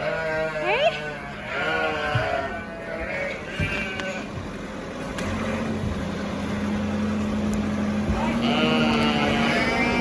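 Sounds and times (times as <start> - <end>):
sheep bleating: 0.0 - 4.4, 8.1 - 10.0
steady engine hum: 0.0 - 10.0.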